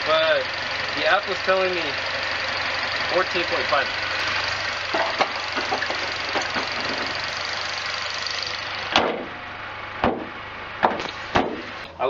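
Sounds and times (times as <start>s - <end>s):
car engine idling: 0.0s - 12.0s
car hood shutting thump: 8.9s - 9.4s, 10.0s - 11.7s.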